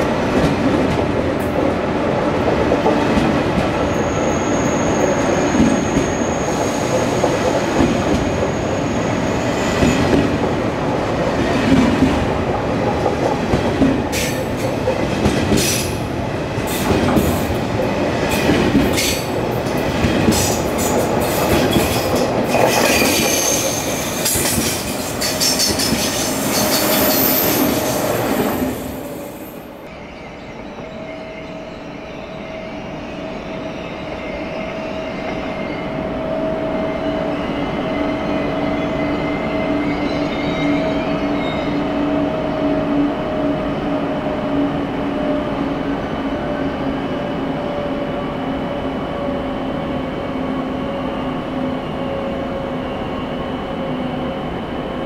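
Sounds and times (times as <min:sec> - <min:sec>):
train at platform: 0:00.0 - 0:55.0
two-tone train whine: 0:00.0 - 0:55.0
faint high squeal: 0:03.9 - 0:09.8.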